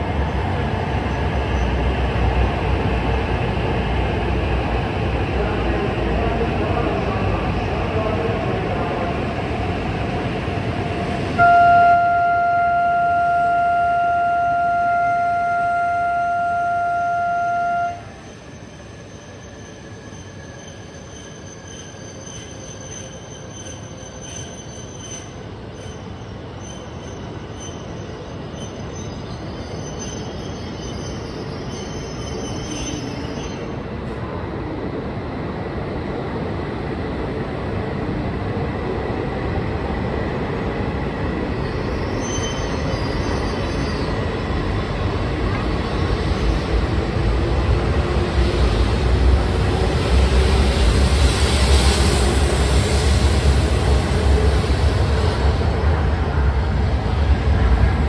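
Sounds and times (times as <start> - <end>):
train rumble: 0.0 - 28.6, 31.5 - 58.0
train horn blast: 11.4 - 18.2.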